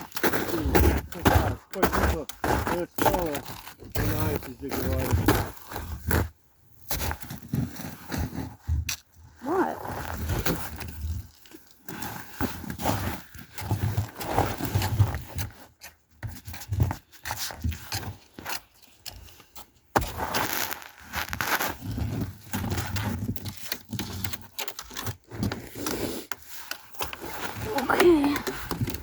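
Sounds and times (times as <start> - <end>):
footsteps on icy snow: 0.1 - 6.2, 20.0 - 22.0.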